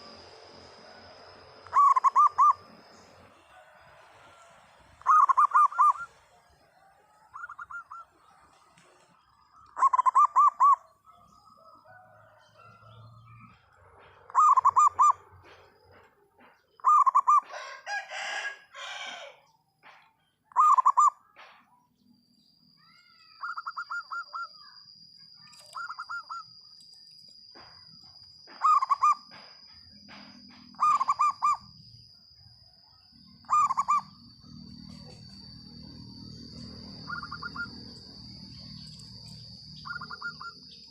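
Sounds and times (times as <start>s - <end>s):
thin steady high tone: 0.0s - 8.5s, 22.0s - 40.9s
dove cooing: 1.2s - 8.2s, 9.6s - 19.3s, 20.5s - 21.1s, 23.4s - 24.7s, 25.4s - 26.5s, 28.5s - 31.7s, 33.2s - 40.9s.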